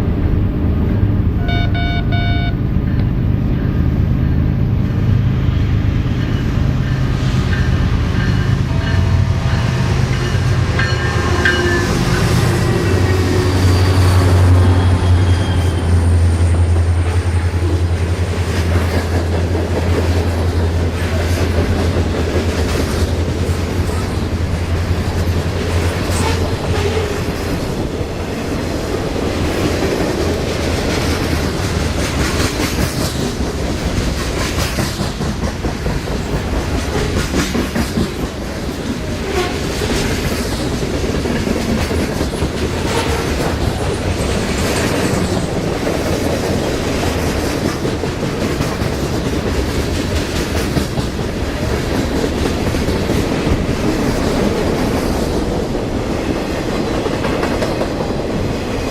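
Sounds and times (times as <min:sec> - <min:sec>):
locomotive engines droning: 0:00.0 - 0:29.7
high wheel squeals: 0:11.0 - 0:16.2
train wheels clicking over rail joints: 0:16.7 - 0:58.8.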